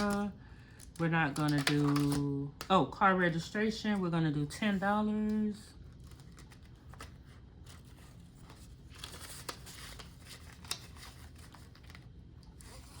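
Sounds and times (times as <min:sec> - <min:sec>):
paper banknotes rustling: 0:01.3 - 0:02.4, 0:04.6 - 0:13.0.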